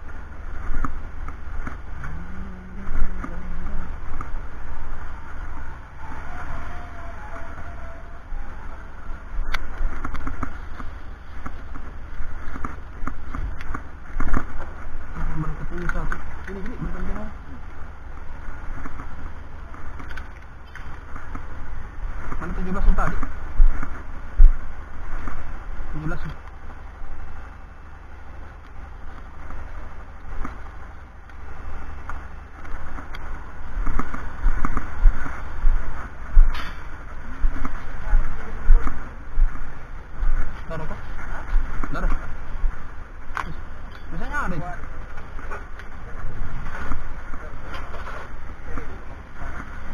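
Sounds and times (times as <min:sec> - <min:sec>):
wind buffeting microphone: 0:00.0 - 0:49.9
sharp click: 0:36.5 - 0:36.9.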